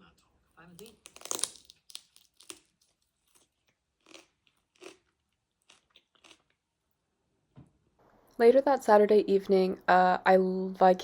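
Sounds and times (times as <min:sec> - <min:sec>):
crisp bite into crunchy food: 0:00.7 - 0:06.6
crunchy chewing: 0:00.7 - 0:06.6.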